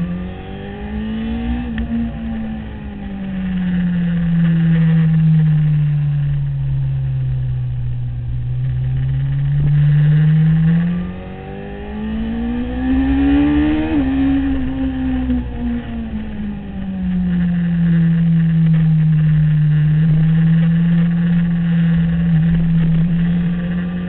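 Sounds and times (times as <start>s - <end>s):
motorcycle engine at speed: 0.0s - 24.0s.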